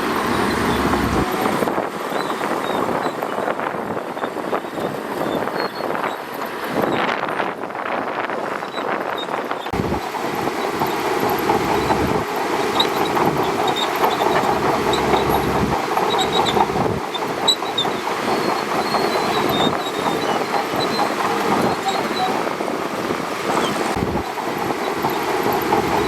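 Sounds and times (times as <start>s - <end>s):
track gear squealing: 0.0s - 7.4s, 8.5s - 26.0s
diesel engine rumbling: 0.0s - 26.0s
steel tracks clattering: 9.8s - 26.0s.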